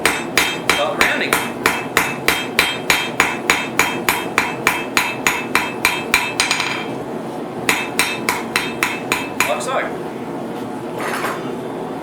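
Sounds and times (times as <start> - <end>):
hammer striking steel on anvil: 0.0 - 6.9, 7.7 - 9.7.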